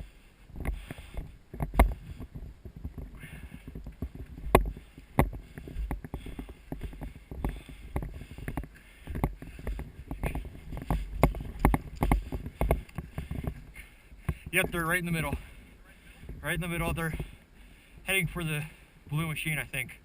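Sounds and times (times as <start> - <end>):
rustling: 0.0 - 17.4
low rumbling: 0.0 - 19.1
sharp knocks and clicks: 0.6 - 15.4.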